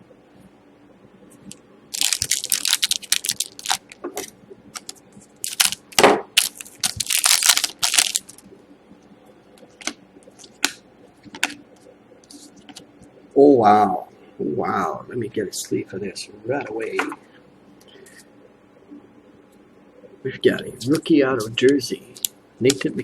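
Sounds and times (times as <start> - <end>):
cards and packaging crinkling: 1.9 - 4.0, 4.8 - 5.8, 6.4 - 8.4.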